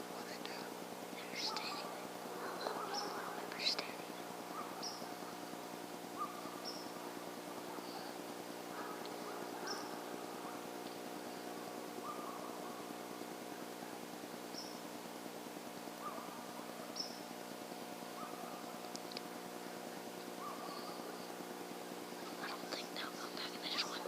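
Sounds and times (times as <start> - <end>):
faint steady hum: 0.0 - 24.0
short bird calls: 6.1 - 13.0, 16.0 - 17.3, 20.4 - 21.4.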